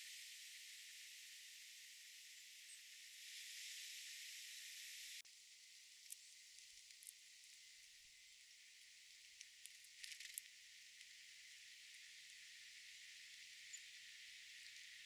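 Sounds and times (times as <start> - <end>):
faint ticks: 8.8 - 11.2.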